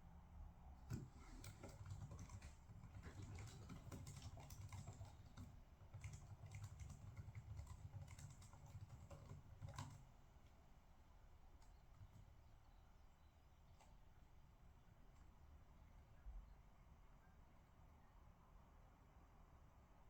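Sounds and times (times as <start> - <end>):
typing on computer keyboard: 0.9 - 10.2.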